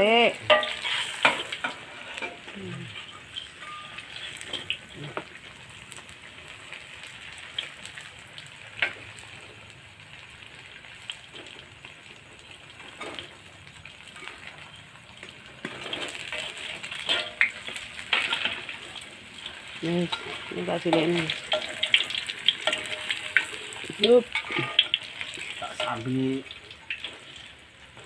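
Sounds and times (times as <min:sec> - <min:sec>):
food sizzling in hot oil: 0:00.0 - 0:28.0
metal spatula scraping wok: 0:00.2 - 0:05.4, 0:12.8 - 0:13.3, 0:15.6 - 0:27.6.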